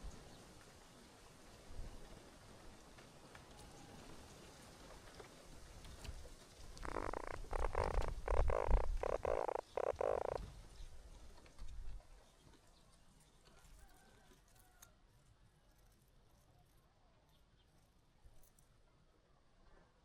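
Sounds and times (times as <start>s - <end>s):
baby birds begging calls: 6.8s - 10.4s.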